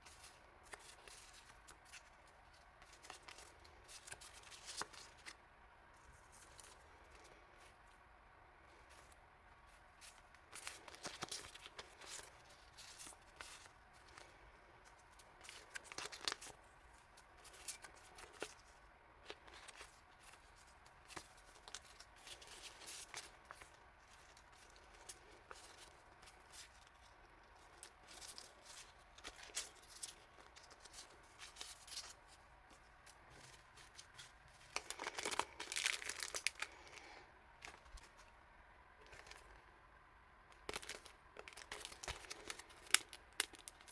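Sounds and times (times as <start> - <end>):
packaging crinkling and tearing: 10.0 - 14.4, 15.4 - 16.6, 17.2 - 32.2, 33.3 - 38.3, 39.0 - 39.6, 40.5 - 43.9.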